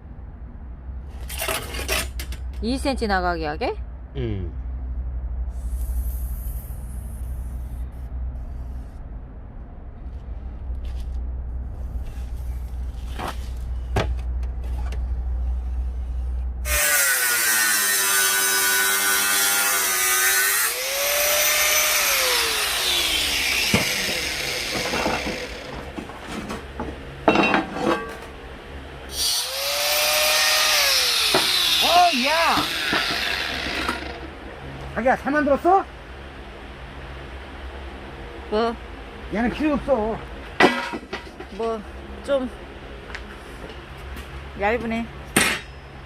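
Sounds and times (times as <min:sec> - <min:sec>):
steady low hum: 0:00.0 - 0:16.7, 0:17.7 - 0:46.0
electric power tool whine: 0:16.6 - 0:26.1, 0:29.1 - 0:34.4.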